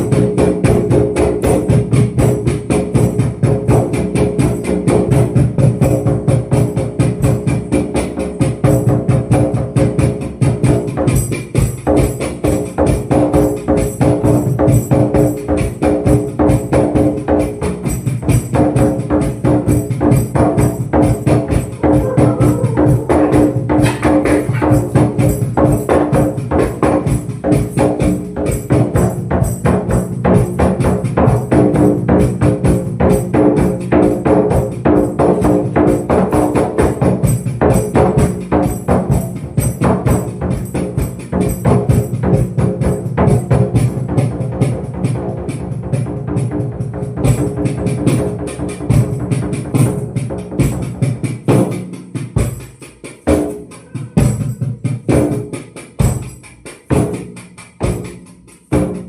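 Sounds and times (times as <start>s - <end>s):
hand drum rhythm: 0.0s - 59.0s
tambourine strikes: 11.0s - 44.3s, 48.9s - 59.0s.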